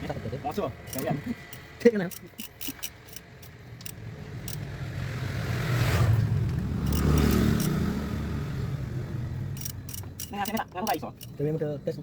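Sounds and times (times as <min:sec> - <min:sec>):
vehicle engine running: 0:06.3 - 0:11.5.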